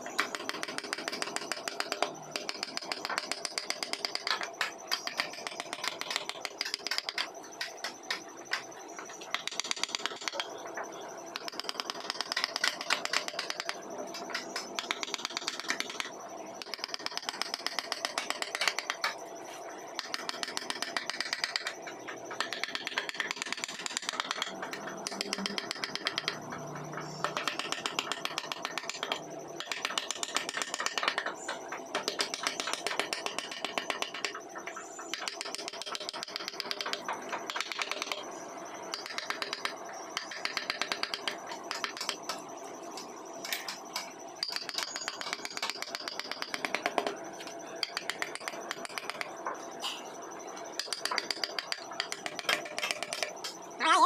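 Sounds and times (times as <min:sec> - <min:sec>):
wood carving clicking and scraping: 0:00.0 - 0:38.3, 0:38.9 - 0:49.6, 0:50.6 - 0:53.6.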